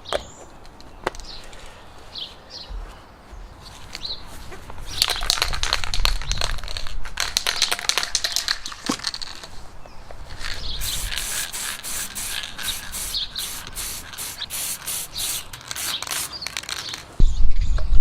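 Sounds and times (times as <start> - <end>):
birds chirping faintly: 12.2 - 18.0.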